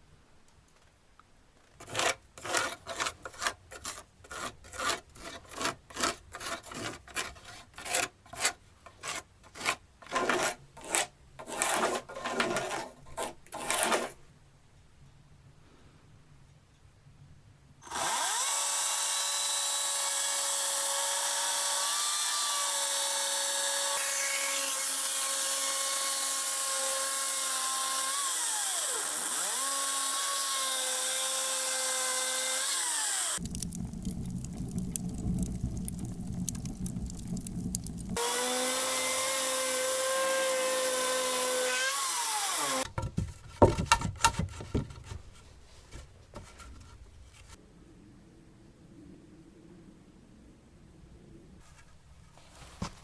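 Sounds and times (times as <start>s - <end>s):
rough low grinding: 32.8s - 41.6s
power tool motor whine: 38.2s - 42.9s.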